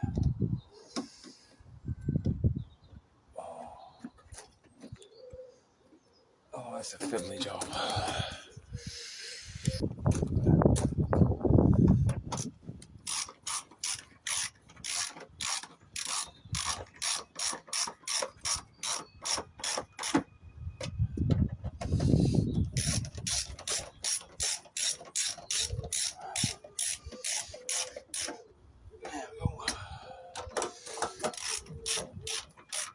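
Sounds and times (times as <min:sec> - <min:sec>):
ratchet spanner clicking: 0:12.4 - 0:20.2, 0:22.7 - 0:28.4, 0:30.6 - 0:32.9.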